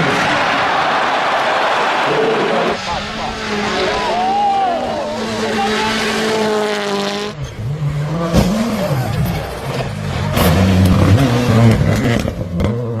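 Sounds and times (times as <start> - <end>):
engine revving through gear changes: 5.0 - 13.0.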